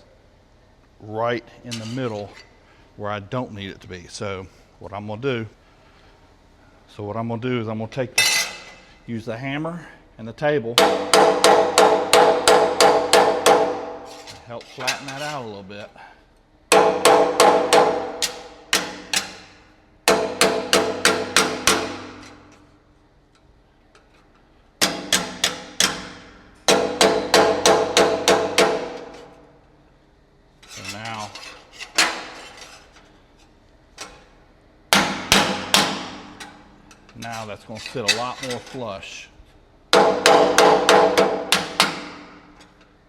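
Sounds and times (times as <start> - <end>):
hammer striking aluminum: 10.8 - 14.3, 16.7 - 22.5, 24.8 - 29.4, 34.9 - 36.6, 39.9 - 42.5.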